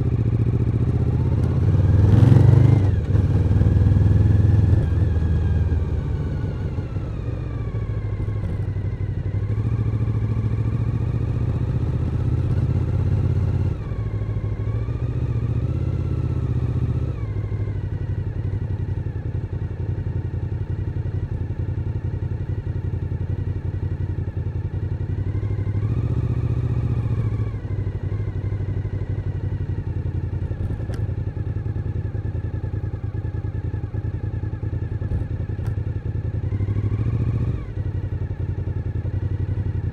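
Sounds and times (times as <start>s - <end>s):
motorcycle engine revving: 0.0s - 18.6s, 24.7s - 31.8s, 34.0s - 39.9s.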